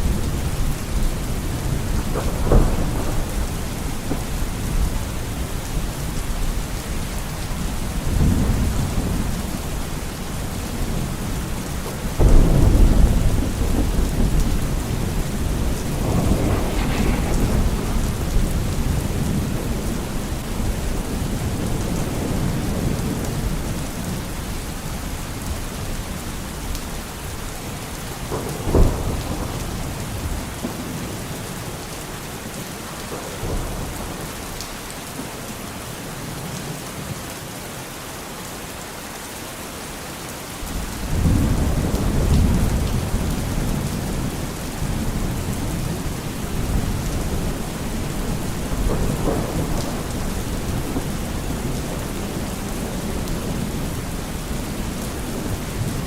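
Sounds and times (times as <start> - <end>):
rolling thunder: 0.0 - 24.5, 28.1 - 31.8, 40.7 - 56.0
steady rain falling: 0.0 - 56.0.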